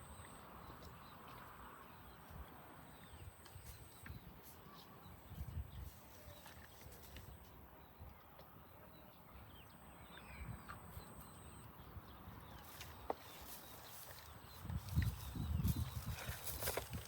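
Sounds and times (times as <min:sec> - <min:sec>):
cattle hooves clopping: 0:12.6 - 0:17.0.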